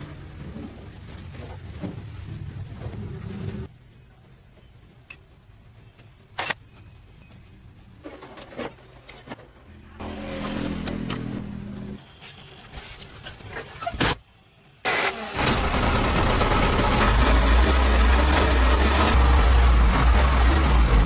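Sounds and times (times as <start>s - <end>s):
heavy engine rumbling: 15.3s - 21.0s.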